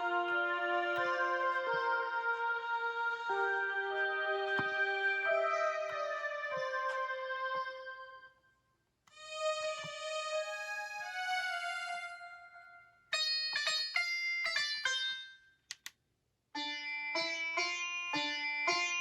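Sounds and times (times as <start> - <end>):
held keyboard notes: 0.0 - 8.2
plucked sitar-like notes: 0.0 - 8.4, 9.2 - 15.6, 16.6 - 19.0.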